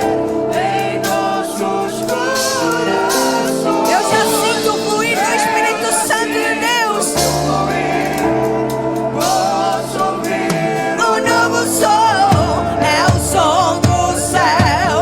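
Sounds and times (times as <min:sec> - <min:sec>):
gospel singing voices: 0:00.0 - 0:15.0
sustained instrumental chords: 0:00.0 - 0:15.0
low drum beats: 0:11.8 - 0:15.0.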